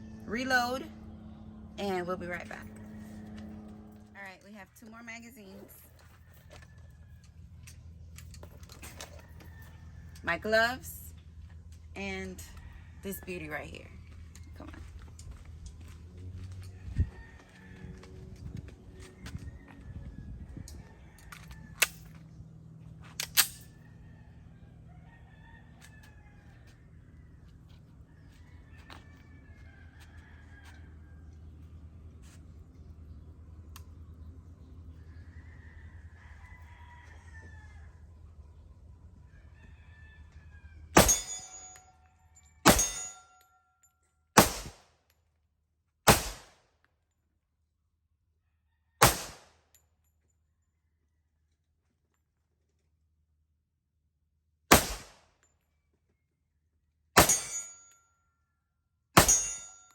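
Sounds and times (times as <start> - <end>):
faint rooster crowing: 5.7 - 7.6, 8.9 - 10.2, 12.4 - 13.3, 15.8 - 22.3, 23.6 - 32.8, 34.9 - 38.6, 39.2 - 41.1, 48.4 - 49.0
pistol gunshots: 41.0 - 41.7, 42.6 - 43.2, 44.4 - 44.8, 46.1 - 46.6, 49.0 - 49.6, 54.7 - 55.2, 57.2 - 57.8, 59.2 - 59.7
metallic ring: 41.0 - 42.0, 42.6 - 43.6, 57.2 - 58.2, 59.2 - 59.9.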